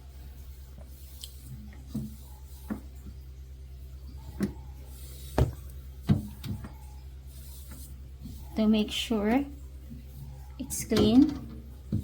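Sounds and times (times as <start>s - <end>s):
refrigerator low hum: 0.0s - 12.0s
towel knocking on shelves: 5.4s - 6.7s.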